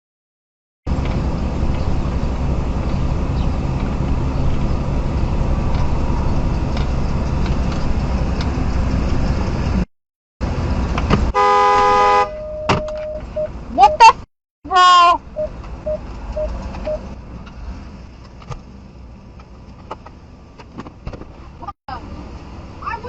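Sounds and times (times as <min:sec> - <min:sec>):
car engine and road noise: 0:00.9 - 0:23.0
car horn blaring: 0:11.3 - 0:13.2.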